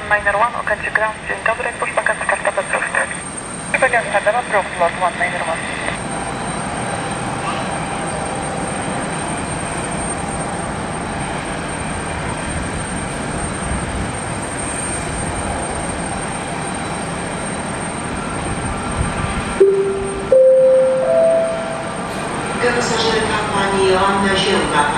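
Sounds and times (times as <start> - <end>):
public-address chime: 19.6 - 22.9.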